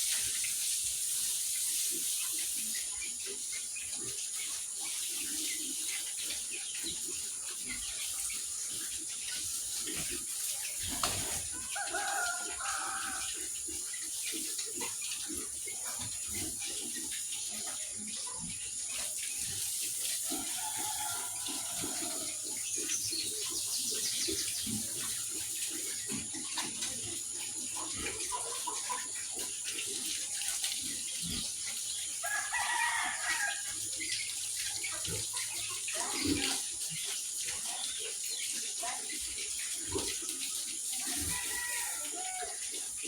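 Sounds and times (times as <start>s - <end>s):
rooster crowing: 11.6s - 13.3s, 20.3s - 22.4s, 32.2s - 33.7s, 41.2s - 42.6s.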